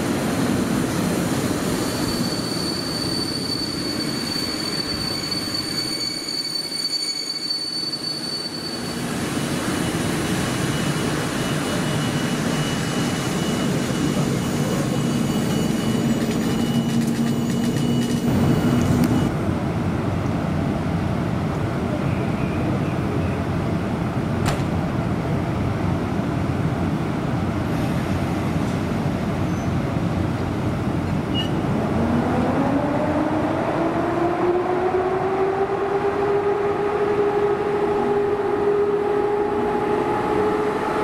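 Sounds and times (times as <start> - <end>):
train running on rails: 0.0 - 41.0
wheel squeal: 1.6 - 9.2, 10.6 - 19.3.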